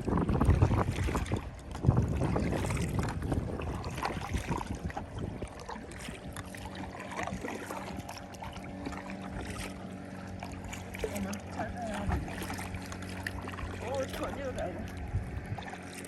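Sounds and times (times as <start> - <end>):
wind gusting over microphone: 0.0 - 8.4, 13.4 - 15.8
water sloshing: 0.0 - 16.0.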